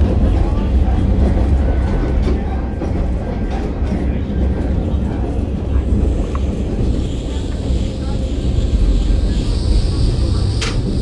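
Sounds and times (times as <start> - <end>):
diesel railcar rumbling: 0.0 - 11.0.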